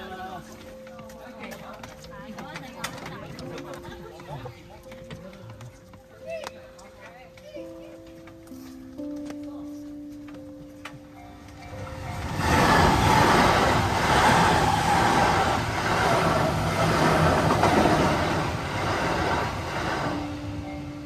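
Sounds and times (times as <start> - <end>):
train passing: 11.1 - 21.0.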